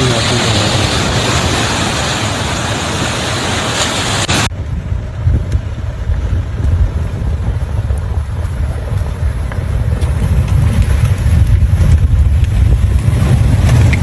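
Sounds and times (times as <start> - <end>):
loud rushing roar: 0.0 - 5.2
low rumble: 0.0 - 14.0.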